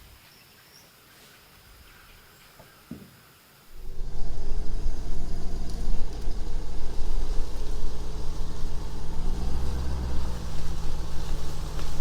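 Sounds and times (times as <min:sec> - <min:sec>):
vehicle engine running: 0:03.8 - 0:12.0.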